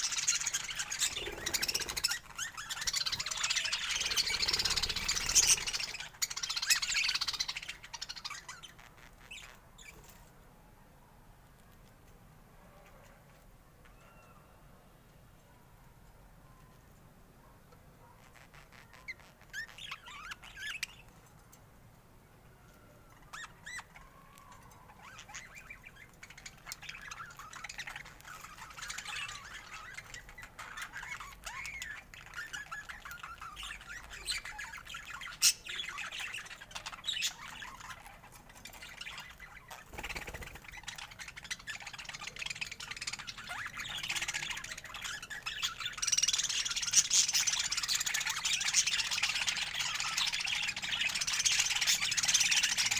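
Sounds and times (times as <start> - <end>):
budgerigars chattering and chirping: 0.0 - 10.0, 24.9 - 52.9.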